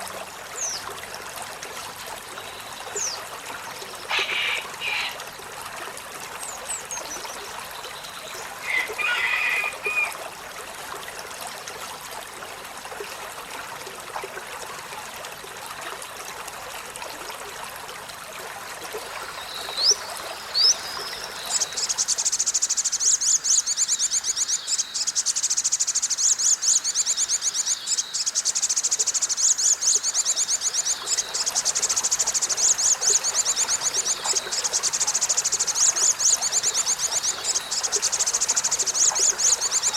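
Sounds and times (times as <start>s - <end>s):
trickling water: 0.0s - 39.9s
bird chirping: 19.4s - 39.9s.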